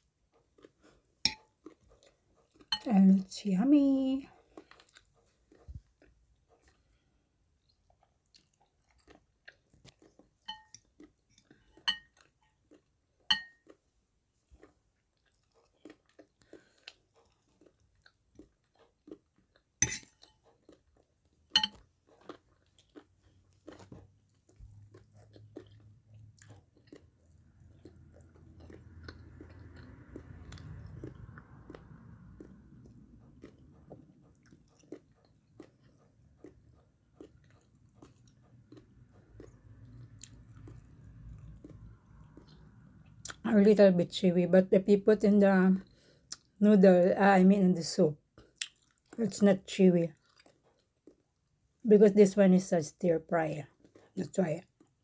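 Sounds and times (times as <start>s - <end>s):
person chewing food close up: 0.0s - 43.5s, 45.8s - 46.6s, 48.2s - 51.9s, 53.4s - 55.0s.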